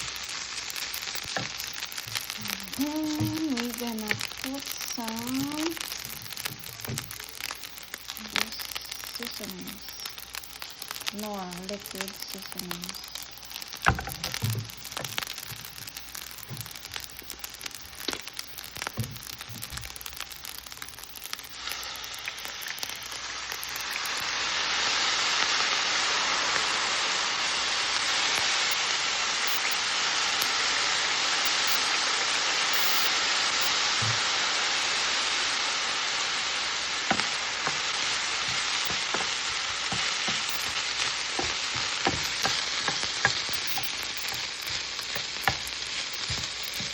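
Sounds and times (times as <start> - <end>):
sharp clicks: 0.0 - 24.3, 40.0 - 40.8, 41.4 - 46.9
rice frying in a pan: 0.0 - 46.9.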